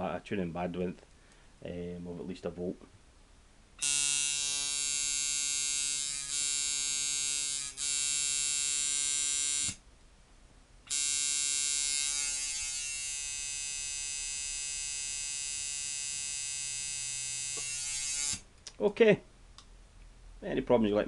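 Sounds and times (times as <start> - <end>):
tattoo machine buzzing: 3.8 - 9.8, 10.9 - 18.5.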